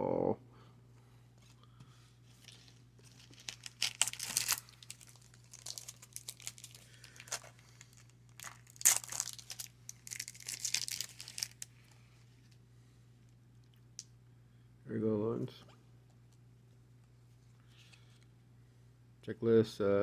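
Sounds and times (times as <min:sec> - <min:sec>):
wrapper tearing and crinkling: 0:02.4 - 0:11.7.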